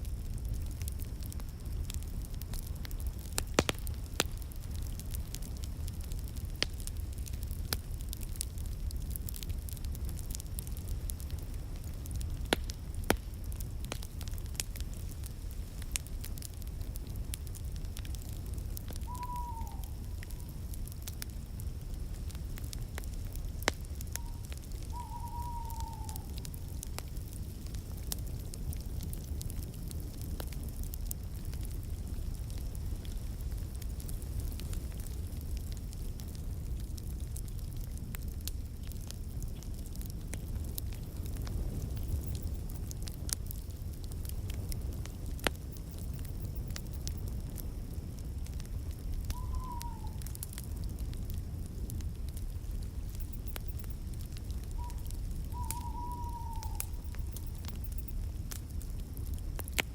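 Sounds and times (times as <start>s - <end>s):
low fire rumble: 0.0s - 59.9s
sharp pops of fire: 0.0s - 59.9s
wood fire crackling: 0.0s - 59.9s
bird calls falling in pitch: 19.1s - 20.0s, 25.0s - 26.2s, 49.4s - 50.2s, 55.6s - 57.0s.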